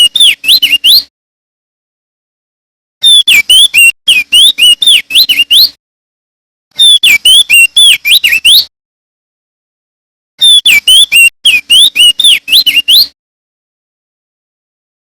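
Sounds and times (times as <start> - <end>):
bird whistling song: 0.0 - 1.1, 3.0 - 5.8, 6.8 - 8.7, 10.4 - 13.2.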